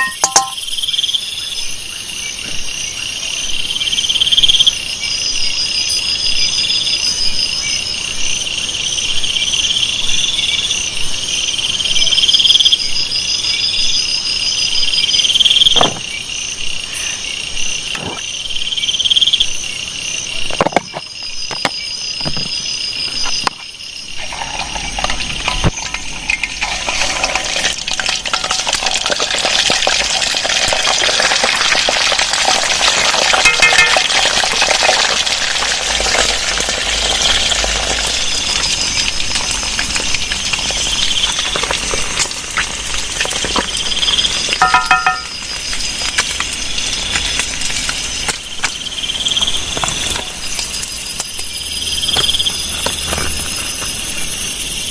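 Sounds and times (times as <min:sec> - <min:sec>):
insects buzzing and trilling: 0:00.0 - 0:54.9
steady high insect drone: 0:35.9 - 0:54.9.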